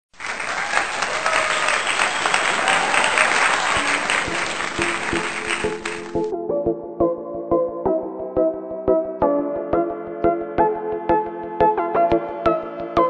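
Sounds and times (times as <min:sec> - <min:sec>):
audience applause: 0:00.1 - 0:06.3.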